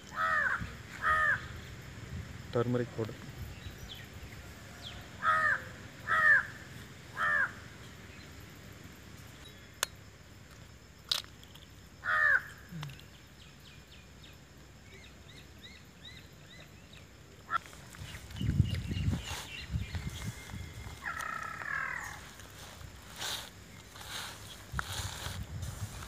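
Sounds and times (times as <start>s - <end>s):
bird calling: 0.0s - 1.8s, 14.9s - 25.3s.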